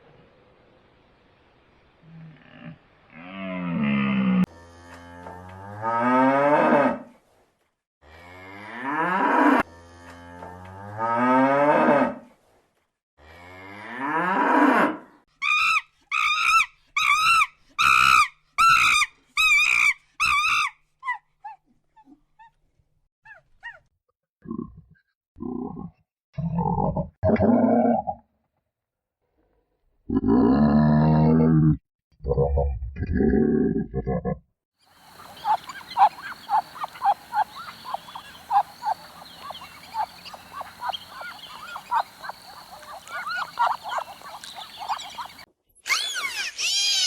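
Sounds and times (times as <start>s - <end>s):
short high-pitched animal calls: 35.0s - 47.0s
cow mooing: 35.2s - 45.4s.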